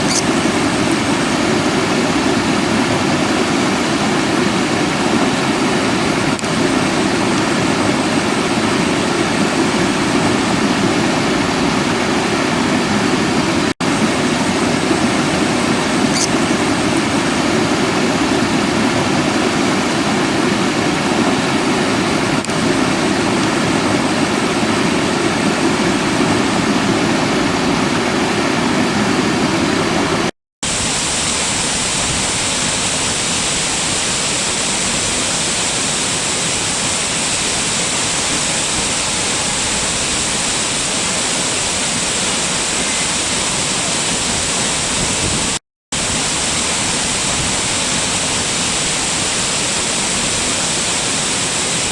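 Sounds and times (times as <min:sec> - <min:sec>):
water rushing: 0:00.0 - 0:51.9.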